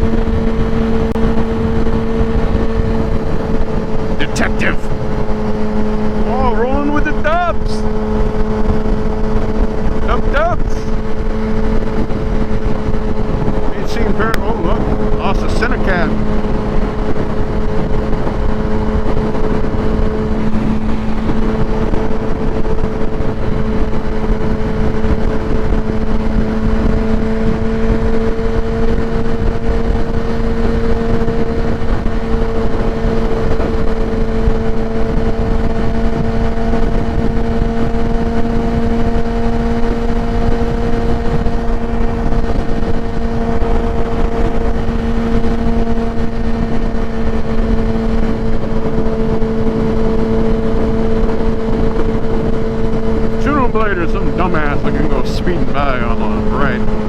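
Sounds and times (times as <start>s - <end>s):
motorcycle engine cruising: 0.0s - 57.0s
wind rush on microphone: 0.0s - 57.0s.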